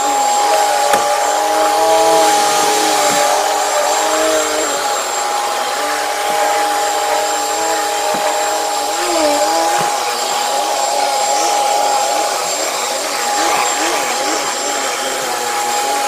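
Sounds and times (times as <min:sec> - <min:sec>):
vacuum cleaner running on carpet: 0:00.0 - 0:16.0.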